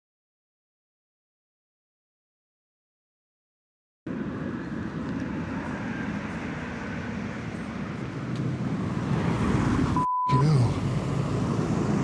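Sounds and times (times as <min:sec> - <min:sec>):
car passing close: 0:04.1 - 0:12.0
short censor beep: 0:10.0 - 0:10.5.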